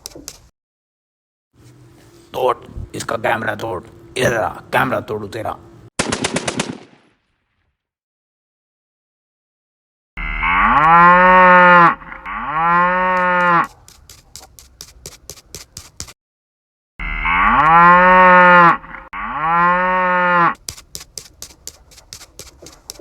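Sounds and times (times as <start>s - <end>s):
cow mooing: 10.4s - 13.8s, 17.1s - 20.6s
quick clicks: 20.6s - 23.0s.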